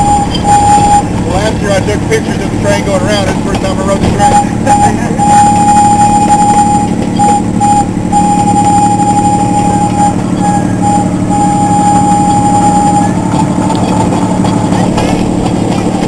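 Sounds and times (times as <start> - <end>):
train engine running: 0.0 - 16.0.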